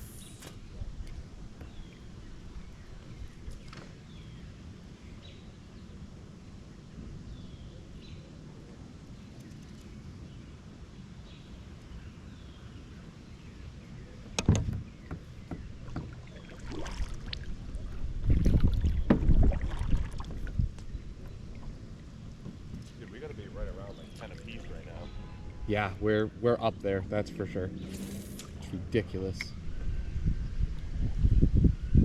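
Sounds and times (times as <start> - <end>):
wind and water hiss: 0.0 - 32.0
paddle knocking on kayak: 14.4 - 17.0, 18.4 - 20.6.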